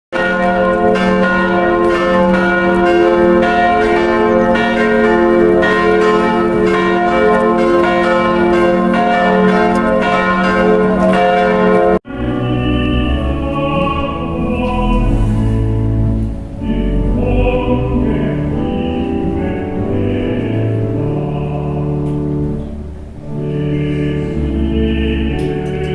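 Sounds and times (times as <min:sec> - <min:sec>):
church bells ringing: 0:00.1 - 0:25.9
music with sustained low tones: 0:12.1 - 0:25.9.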